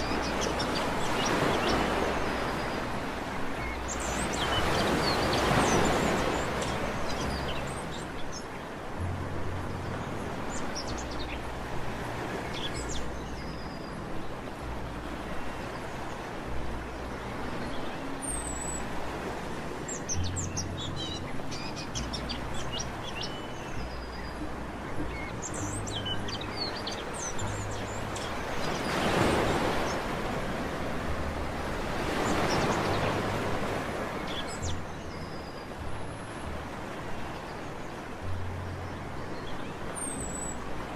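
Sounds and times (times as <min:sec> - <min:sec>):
small birds chirping: 0:00.0 - 0:08.8, 0:19.8 - 0:30.8, 0:31.6 - 0:35.8
sea waves washing onto beach: 0:00.0 - 0:40.9.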